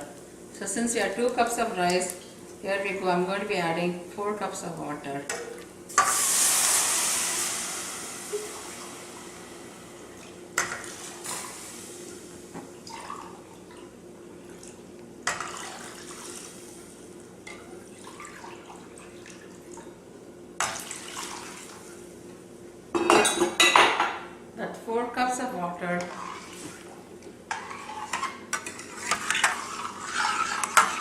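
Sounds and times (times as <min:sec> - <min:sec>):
rice sizzling and bubbling: 0:05.5 - 0:19.7, 0:26.0 - 0:31.0
water hissing in a hot pan: 0:05.9 - 0:12.6.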